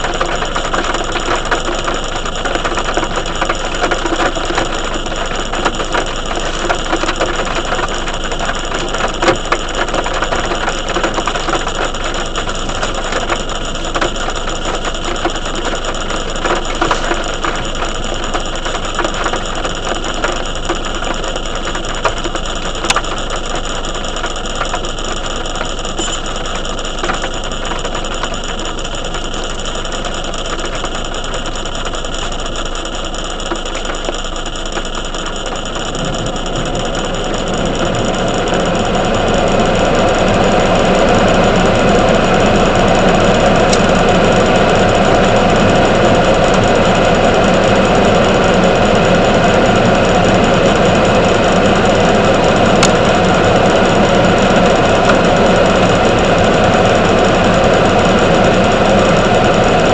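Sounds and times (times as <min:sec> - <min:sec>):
heavy rain falling: 0:35.4 - 0:59.9.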